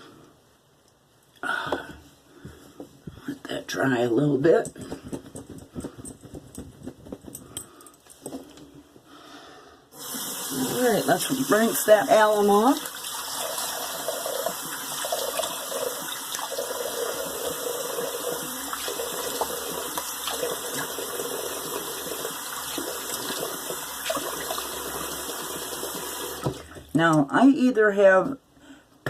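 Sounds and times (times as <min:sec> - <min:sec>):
tap water running into sink: 0:10.0 - 0:27.0.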